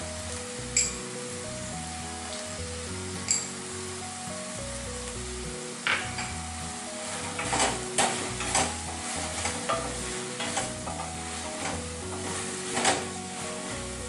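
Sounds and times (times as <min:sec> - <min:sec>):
faint background music: 0:00.0 - 0:14.0
vegetables sizzling in a pan: 0:00.0 - 0:14.0
spatula scraping a pan: 0:05.9 - 0:14.0.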